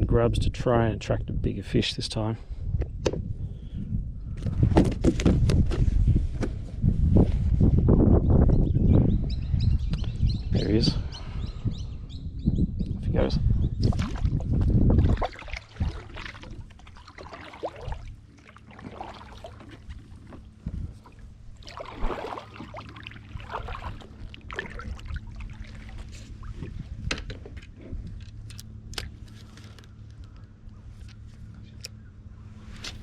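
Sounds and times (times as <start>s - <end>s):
water splashing against kayak: 13.8s - 27.1s.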